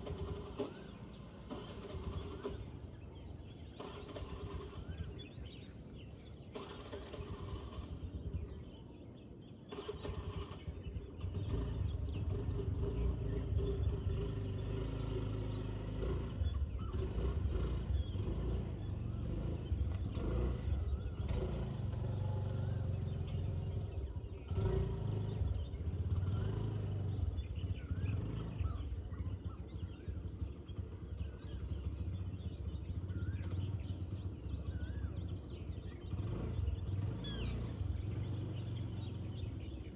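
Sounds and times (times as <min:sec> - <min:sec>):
faint bird calls: 0:27.4 - 0:39.9
steady high tone: 0:37.3 - 0:37.7.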